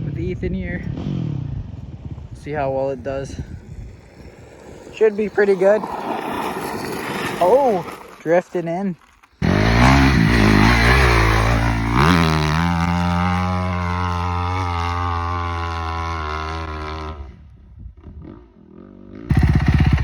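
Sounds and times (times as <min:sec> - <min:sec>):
dirt bike engine at full throttle: 0:00.0 - 0:03.9, 0:09.4 - 0:20.0.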